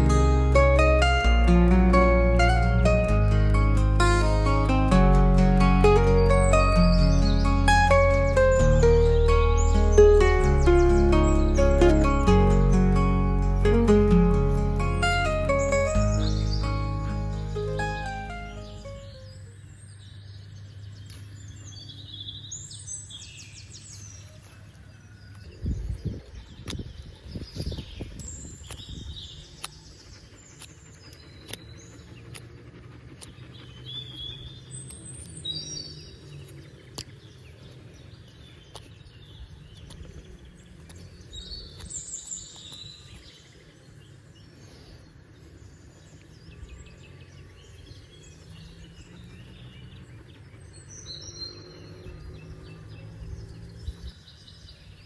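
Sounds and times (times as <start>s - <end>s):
low outdoor rumble: 0.0s - 19.9s
birds chirping: 0.0s - 24.4s, 25.6s - 55.0s.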